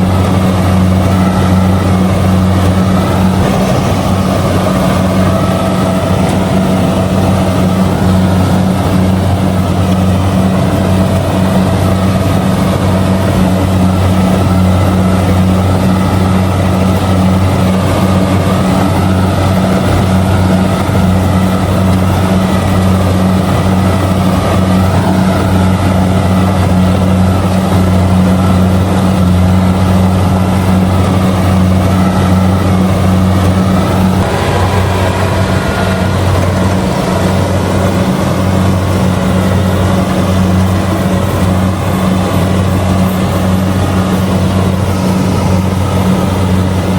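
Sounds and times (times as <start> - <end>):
combine harvester diesel engine running: 0.0 - 46.9.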